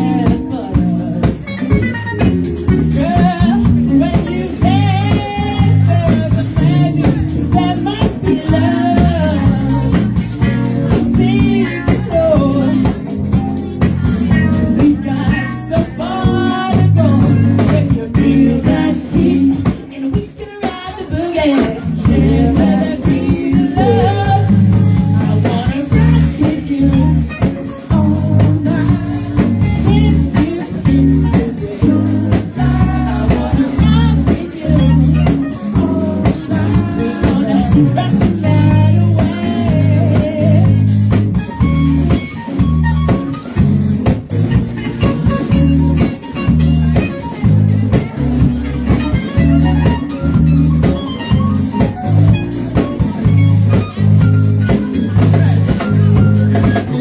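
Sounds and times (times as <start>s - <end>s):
person singing: 0.0s - 43.7s
blues-rock band playing: 0.0s - 57.0s.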